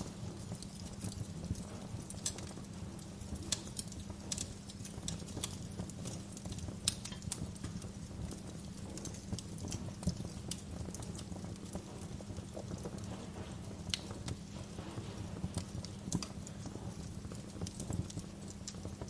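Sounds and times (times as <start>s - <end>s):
fire crackling and popping: 0.0s - 19.0s
fire flames rumbling: 0.0s - 19.0s.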